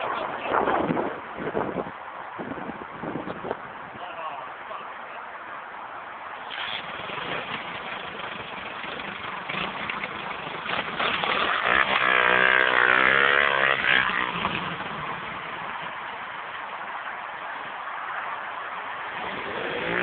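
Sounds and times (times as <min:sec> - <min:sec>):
pit bike engine revving: 0:06.4 - 0:15.7, 0:19.1 - 0:20.0.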